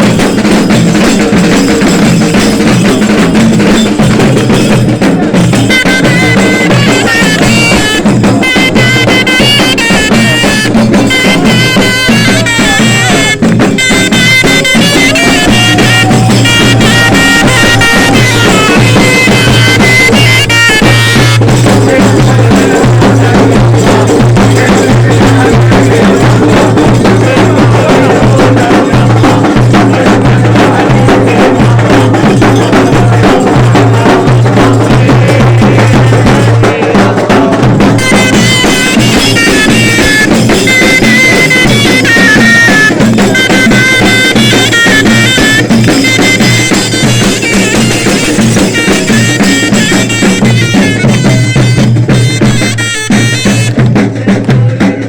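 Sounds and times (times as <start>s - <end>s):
dense drumming: 0.0s - 55.0s
reedy melody: 5.6s - 30.0s, 38.0s - 54.7s
droning wind instrument: 5.7s - 26.1s, 38.0s - 53.8s.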